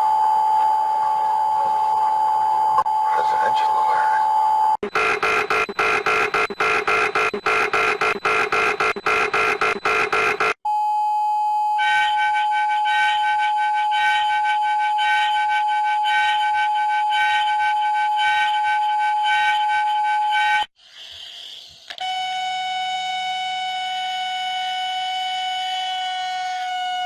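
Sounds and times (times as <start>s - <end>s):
rapid rhythmic beeps: 2.8s - 10.6s
steady electronic alert tone: 2.8s - 10.6s
fast pulsing alert beep: 4.8s - 10.6s.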